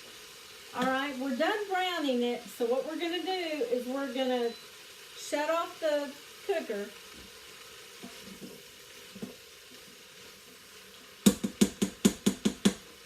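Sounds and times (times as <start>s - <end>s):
chicken sizzling in a pot: 0.0s - 13.0s
rapid sharp knocks: 11.2s - 12.8s.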